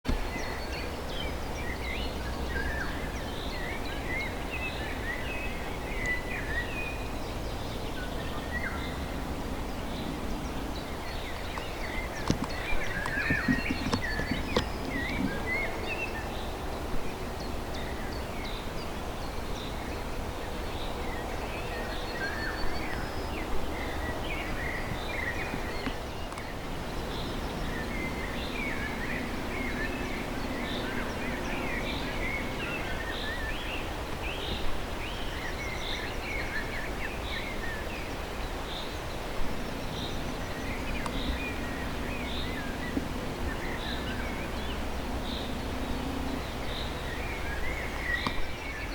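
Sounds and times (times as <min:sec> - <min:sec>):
low background rumble: 0:00.1 - 0:48.9
small birds chirping and singing: 0:00.1 - 0:48.9.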